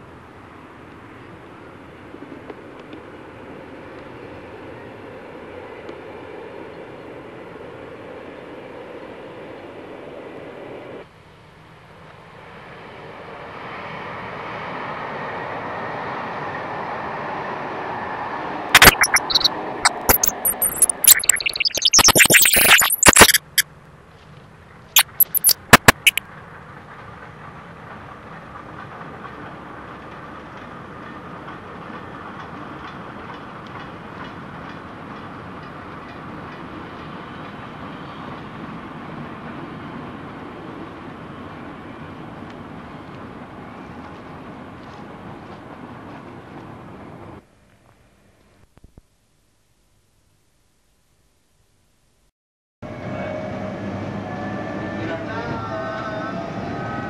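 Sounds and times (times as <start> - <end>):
crackling pops and clicks: 18.8 - 23.6, 25.0 - 26.2
steam train rumbling past: 26.3 - 47.2.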